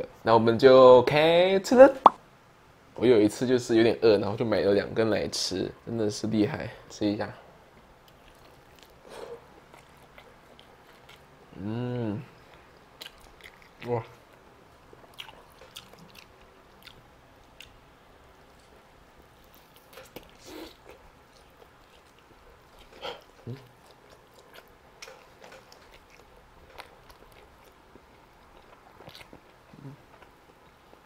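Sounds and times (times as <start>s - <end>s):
chewing and biting chicken: 8.0s - 11.3s, 13.0s - 17.8s, 19.4s - 31.0s.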